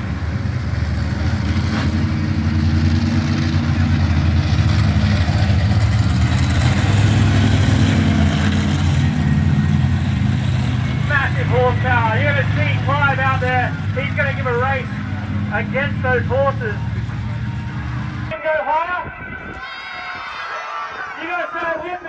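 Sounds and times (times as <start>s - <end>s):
truck engines idling low: 0.0s - 18.3s.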